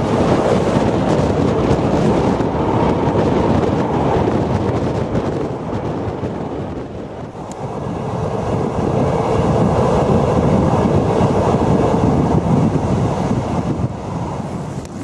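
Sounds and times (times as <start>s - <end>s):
passenger train running: 0.0s - 15.0s
wind buffeting microphone: 0.0s - 15.0s.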